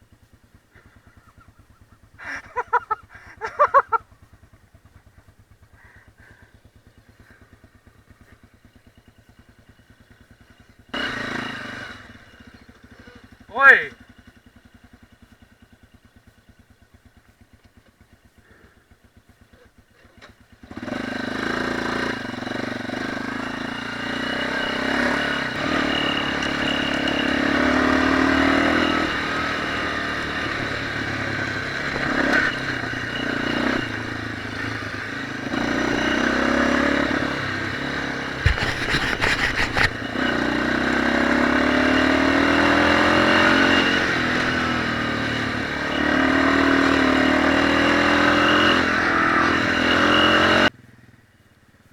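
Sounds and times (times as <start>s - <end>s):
motorcycle engine revving: 0.0s - 51.2s
burst of clatter: 38.4s - 40.1s.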